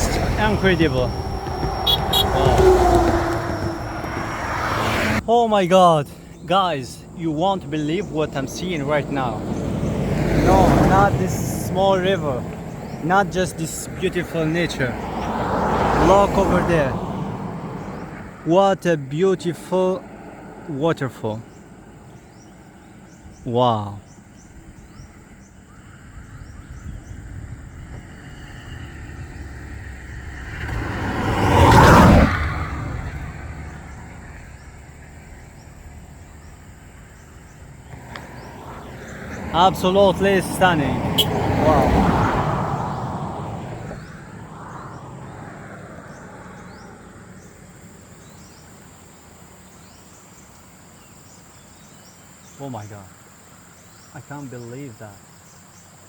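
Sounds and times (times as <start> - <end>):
rising insect chirps: 0.0 - 5.2
insect drone: 0.0 - 18.5, 19.1 - 56.0
road vehicle passing: 0.0 - 56.0.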